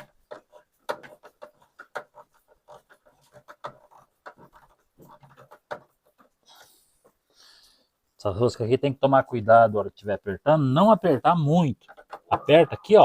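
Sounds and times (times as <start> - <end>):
hand tools clicking and scraping plastic: 0.0 - 7.3, 10.8 - 13.0.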